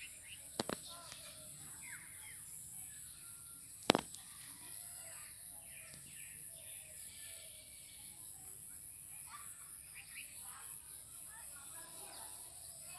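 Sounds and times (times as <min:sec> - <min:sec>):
small birds chirping: 0:00.0 - 0:12.9
sharp click: 0:03.9 - 0:04.2.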